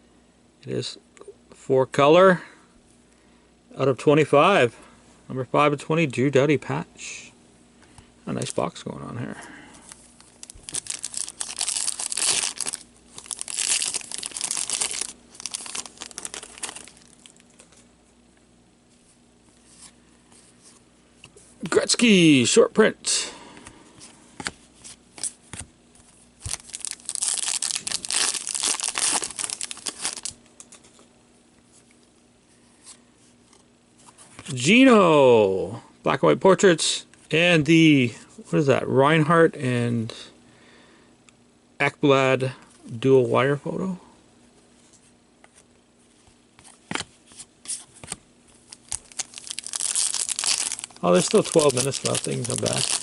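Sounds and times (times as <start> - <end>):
wrapper tearing and crinkling: 10.2 - 17.7, 26.4 - 30.4, 48.6 - 53.0
trading cards clicking and rustling: 10.2 - 17.8, 26.4 - 31.0, 46.6 - 53.0.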